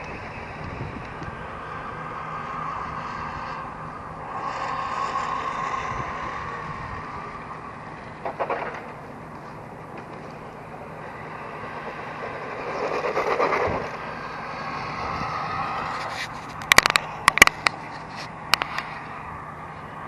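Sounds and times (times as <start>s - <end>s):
sharp clacks: 15.8s - 18.9s.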